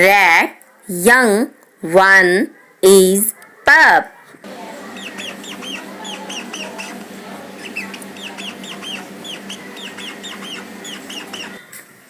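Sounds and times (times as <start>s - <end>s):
background hiss and hum: 4.4s - 12.0s
rat squeaking: 4.8s - 11.7s.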